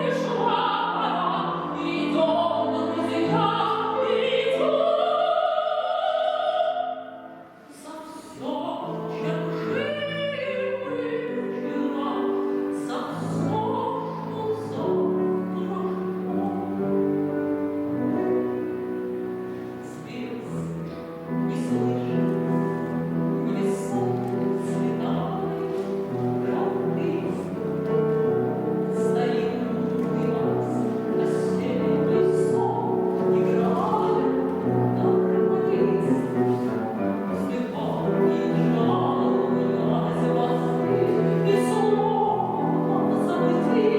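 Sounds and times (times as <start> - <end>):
grand piano playing chords: 0.0 - 43.9.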